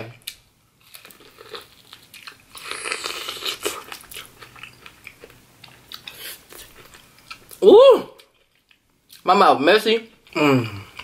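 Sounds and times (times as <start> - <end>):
crunching and chewing: 0.2 - 7.6.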